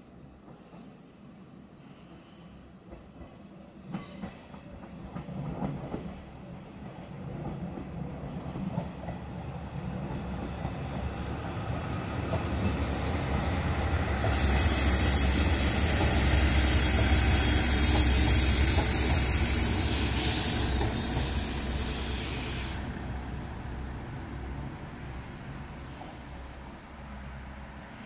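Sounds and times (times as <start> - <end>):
diesel train rumbling past: 0.0 - 28.0
high-pitched wheel squeal: 14.3 - 22.9.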